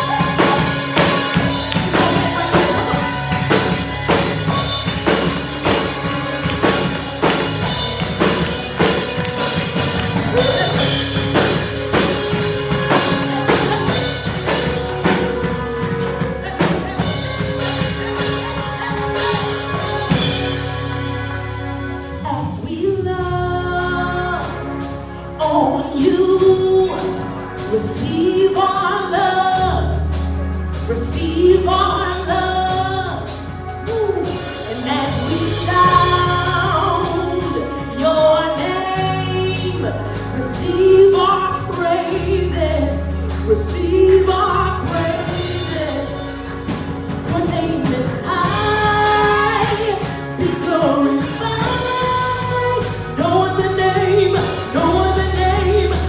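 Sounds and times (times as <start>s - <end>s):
woman singing: 0.0s - 6.1s, 22.2s - 24.8s, 25.4s - 30.1s, 30.9s - 56.0s
band playing: 0.0s - 56.0s
bass notes: 0.0s - 56.0s
cymbals: 0.0s - 56.0s.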